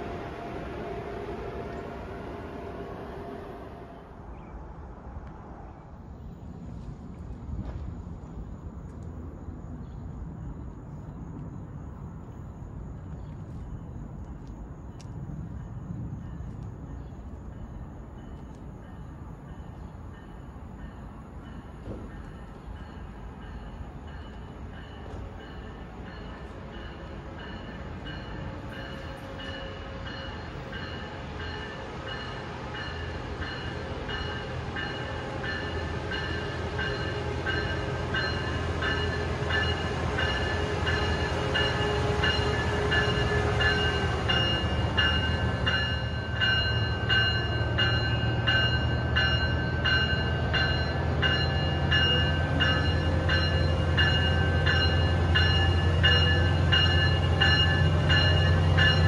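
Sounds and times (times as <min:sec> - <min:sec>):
passenger train rumbling: 0:00.0 - 0:59.0
rhythmic ringing bell: 0:27.4 - 0:59.0.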